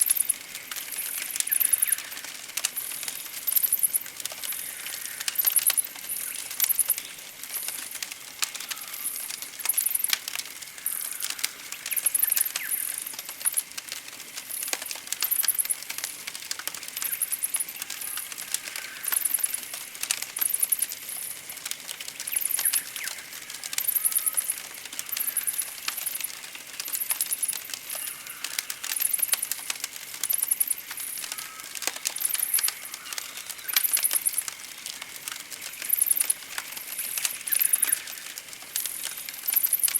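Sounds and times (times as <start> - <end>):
campfire crackling and popping: 0.0 - 39.9
faint bird calls: 3.5 - 7.2, 8.5 - 10.1, 17.0 - 19.7, 22.3 - 29.3, 30.3 - 34.5, 35.7 - 39.9.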